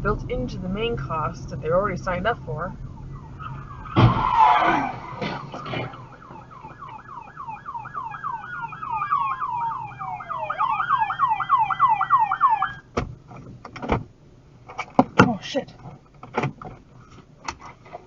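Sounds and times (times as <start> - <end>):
siren wailing: 1.6 - 12.9
siren yelping: 2.4 - 12.9.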